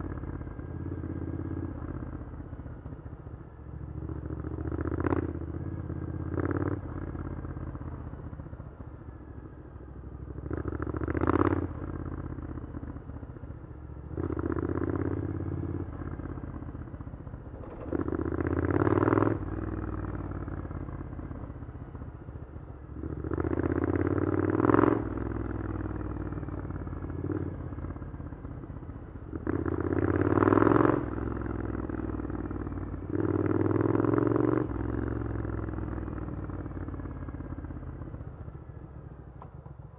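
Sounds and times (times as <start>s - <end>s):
motorcycle engine revving: 14.0s - 38.8s.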